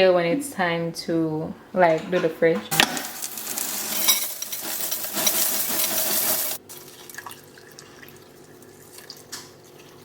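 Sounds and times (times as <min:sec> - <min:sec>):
water running: 0:02.8 - 0:10.0.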